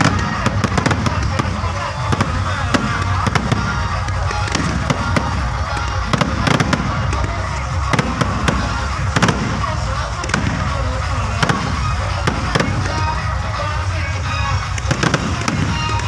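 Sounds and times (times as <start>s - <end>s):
fireworks banging: 0.0s - 16.0s
music: 0.0s - 16.0s
voices: 0.0s - 16.0s.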